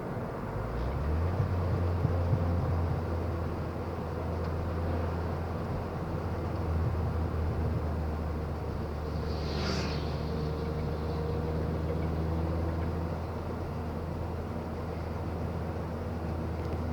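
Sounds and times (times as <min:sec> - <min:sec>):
car engine low drone: 0:00.0 - 0:16.9
short hiss: 0:09.1 - 0:10.5.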